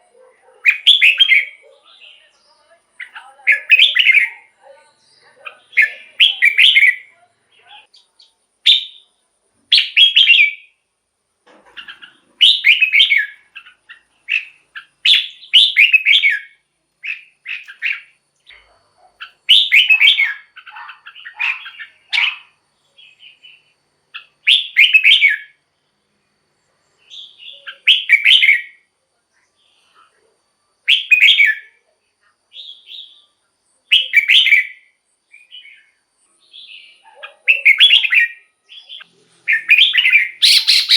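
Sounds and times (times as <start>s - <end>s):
bird whistling song: 0.6s - 2.2s, 3.0s - 7.1s, 8.7s - 9.1s, 9.7s - 10.8s, 11.8s - 18.1s, 19.2s - 25.6s, 27.0s - 28.8s, 30.9s - 31.8s, 32.5s - 33.3s, 33.9s - 40.9s.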